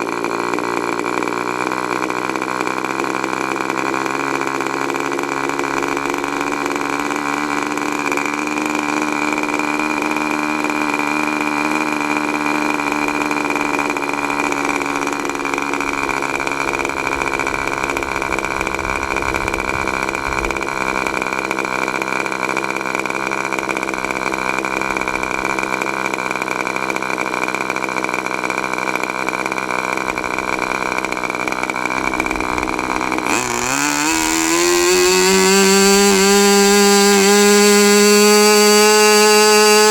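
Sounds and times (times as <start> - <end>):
model engine running and revving: 0.0 - 39.9.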